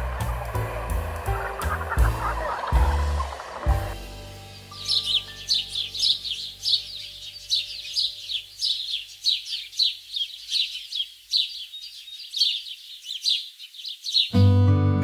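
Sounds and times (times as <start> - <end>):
bird chirping: 0.0 - 14.5.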